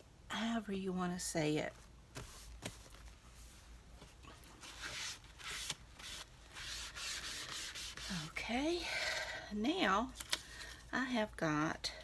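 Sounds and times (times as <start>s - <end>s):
paper rustling and scraping: 1.8s - 8.4s.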